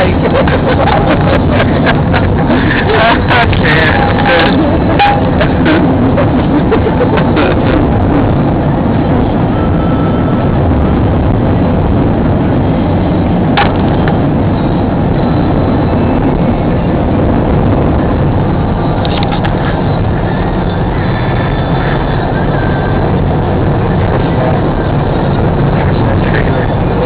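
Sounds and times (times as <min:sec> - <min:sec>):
road and wind noise: 0:00.0 - 0:27.0.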